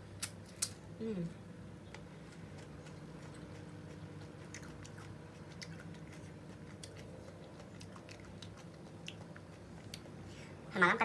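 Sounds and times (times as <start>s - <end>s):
faint low hum: 0.0s - 11.0s
chewing juicy fruit: 1.9s - 10.6s.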